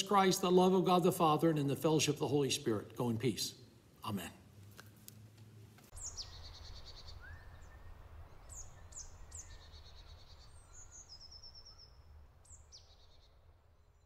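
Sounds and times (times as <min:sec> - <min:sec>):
faint songbirds chirping: 0:05.5 - 0:14.0.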